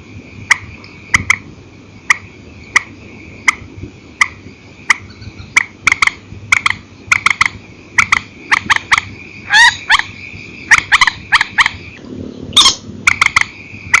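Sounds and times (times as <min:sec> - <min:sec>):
steady high whine: 0:00.0 - 0:14.0
swamphen sharp clipped calls: 0:00.4 - 0:14.0
bird calls sliding downward: 0:06.7 - 0:14.0.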